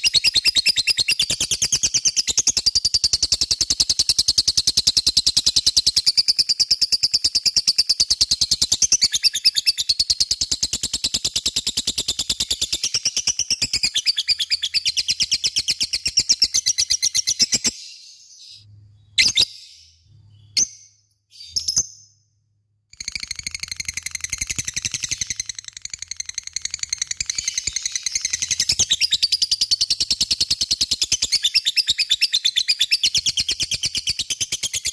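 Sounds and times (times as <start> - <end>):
lovebird single calls: 16.0 - 19.8.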